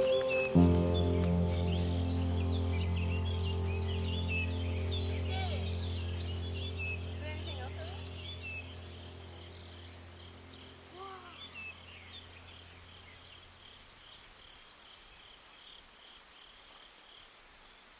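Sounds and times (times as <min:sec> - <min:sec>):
steady low hum: 0:00.0 - 0:13.5
high hiss: 0:00.0 - 0:17.9
insect chirping: 0:00.0 - 0:17.9.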